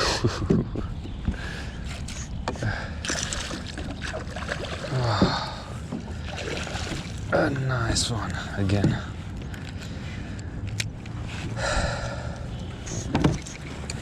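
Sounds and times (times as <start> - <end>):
water splashing and gurgling: 1.7 - 8.0
light knocks against boat: 8.7 - 9.1, 13.0 - 13.6.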